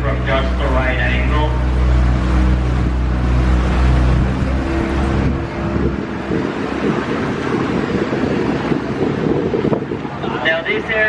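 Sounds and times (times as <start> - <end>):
boat motor humming: 0.0 - 11.0
wind rumbling on microphone: 0.0 - 11.0.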